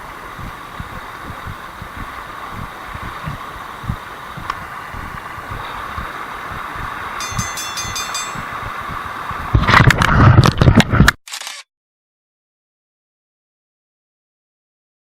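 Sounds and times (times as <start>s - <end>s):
stream water rushing: 0.0s - 10.7s
bumping and rubbing on microphone: 9.4s - 11.2s.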